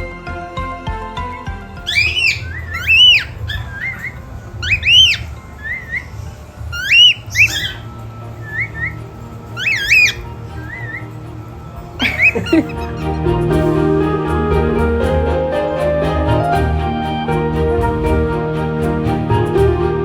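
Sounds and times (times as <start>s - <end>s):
cockatiels whistling: 1.8s - 13.2s
soft bird chirps: 1.8s - 13.2s.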